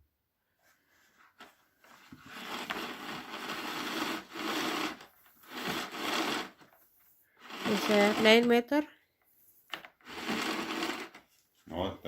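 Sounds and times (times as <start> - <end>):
power cord rubbing out of reel: 2.2 - 6.8, 7.4 - 8.8, 9.7 - 11.3.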